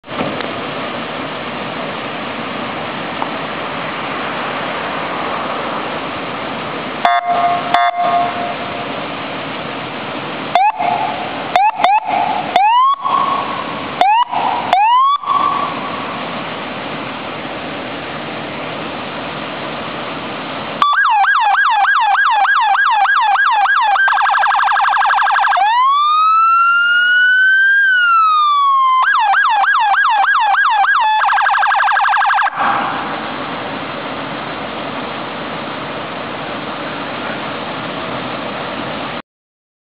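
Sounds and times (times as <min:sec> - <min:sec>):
police siren: 0:07.0 - 0:08.9, 0:10.5 - 0:16.4, 0:20.8 - 0:33.5.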